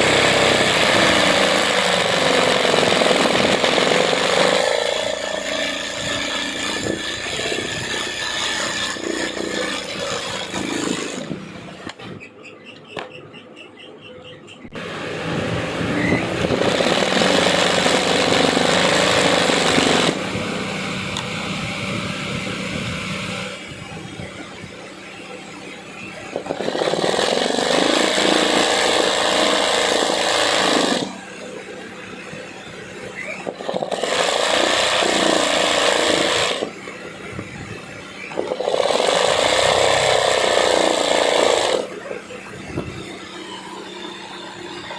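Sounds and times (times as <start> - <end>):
sewing machine stitching: 16.5 - 20.2, 33.4 - 36.7, 38.3 - 41.9.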